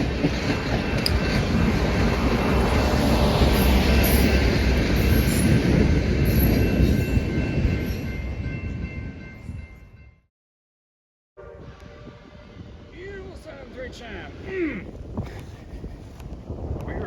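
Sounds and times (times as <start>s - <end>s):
train rumbling past: 0.0s - 10.1s.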